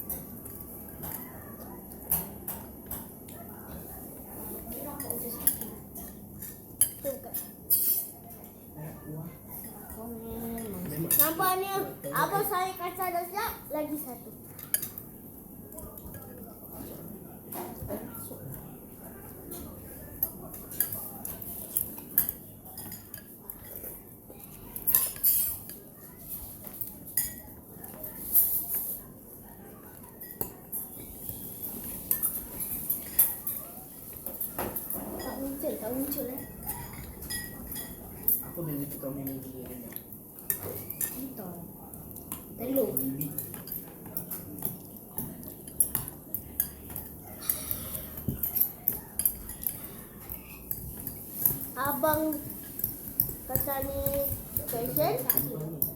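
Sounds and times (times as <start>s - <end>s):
cutlery clinking against bowl: 0.0s - 8.6s, 9.5s - 12.2s, 14.4s - 18.7s, 19.4s - 29.3s, 29.9s - 41.4s, 42.0s - 55.9s
cutlery scraping bowl: 5.0s - 8.2s, 42.7s - 55.9s.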